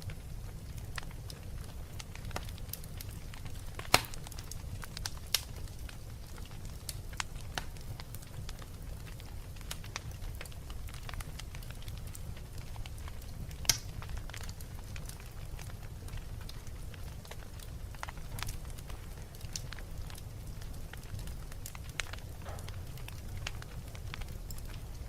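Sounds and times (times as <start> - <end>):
fire low rumble: 0.0 - 25.0
wood fire crackling and popping: 0.0 - 25.0
sharp loud fire pop: 3.9 - 4.2.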